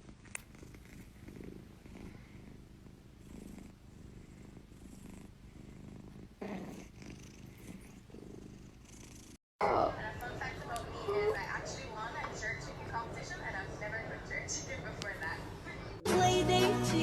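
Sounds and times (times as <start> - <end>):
cat purring: 0.0 - 9.4.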